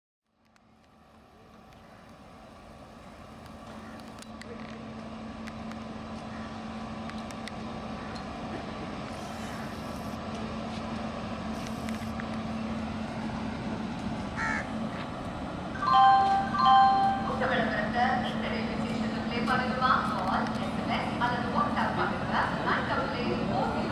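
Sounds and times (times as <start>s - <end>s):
electric locomotive hum and rumble: 0.2s - 23.9s
crows cawing: 3.8s - 4.0s, 6.3s - 6.6s, 14.4s - 14.7s.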